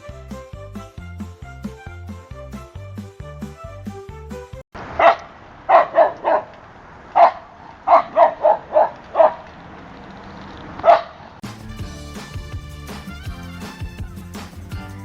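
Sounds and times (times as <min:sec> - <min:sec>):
backing music: 0:00.0 - 0:04.6, 0:11.4 - 0:15.0
dog barking: 0:05.0 - 0:06.5, 0:07.2 - 0:09.4, 0:10.8 - 0:11.2.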